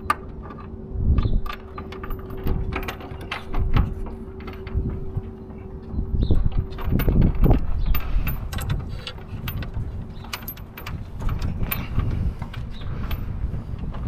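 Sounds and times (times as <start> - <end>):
tools clicking and knocking: 1.4 - 5.7, 6.5 - 14.0.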